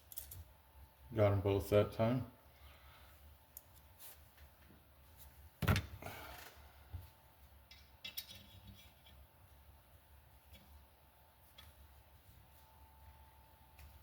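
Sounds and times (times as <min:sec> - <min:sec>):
metal tools clattering: 0:07.7 - 0:08.9.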